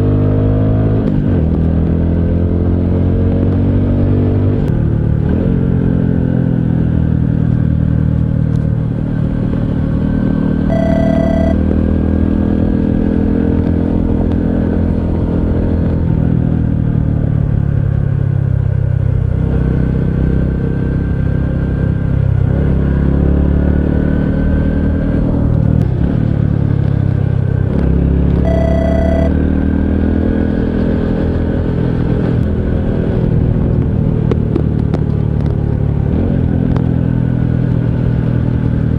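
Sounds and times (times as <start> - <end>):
short beeps: 10.7 - 11.6, 28.5 - 29.3.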